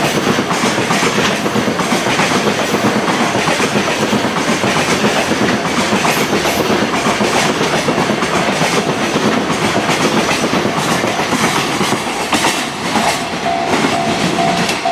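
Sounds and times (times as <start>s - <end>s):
freight train wheels clattering: 0.0s - 14.9s
pulsing high tone: 13.4s - 14.9s.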